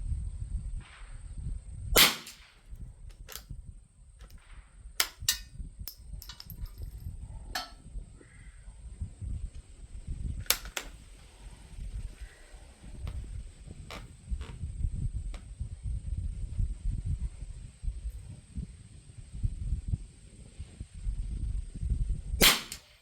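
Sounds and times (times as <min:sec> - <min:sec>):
low wind rumble: 0:00.0 - 0:23.0
rifle shot crack: 0:02.0 - 0:02.6, 0:22.4 - 0:22.9
sharp clicks and knocks: 0:03.1 - 0:03.5, 0:05.0 - 0:07.0, 0:07.6 - 0:07.8, 0:10.5 - 0:11.0.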